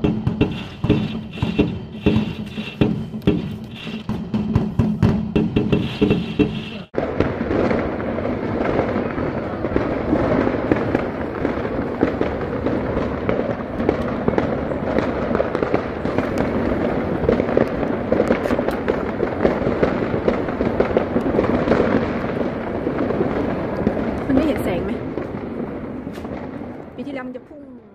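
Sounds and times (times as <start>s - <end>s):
firecracker barrage: 0.0s - 27.8s.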